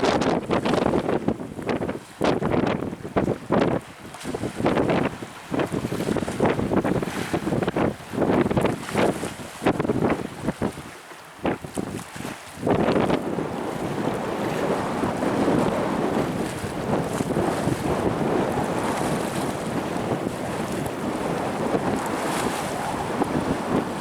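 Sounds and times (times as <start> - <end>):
waves surging against shore: 0.5 - 24.0
gale buffeting microphone: 11.4 - 24.0.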